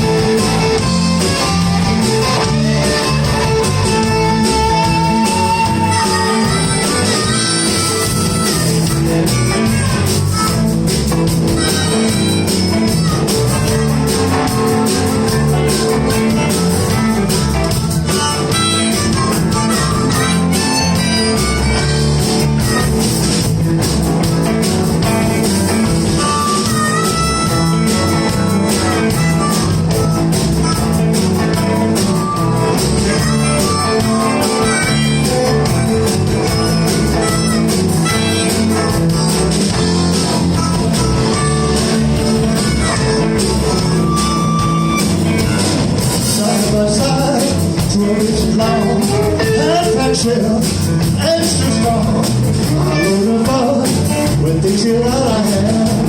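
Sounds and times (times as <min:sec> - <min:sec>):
guitar: 0:00.0 - 0:56.0
live blues band playing: 0:00.0 - 0:56.0.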